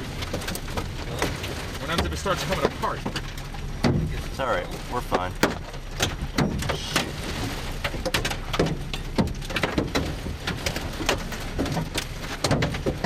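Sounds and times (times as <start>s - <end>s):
hailstones striking vehicle: 0.0s - 13.0s
heavy rain hissing: 6.5s - 7.8s.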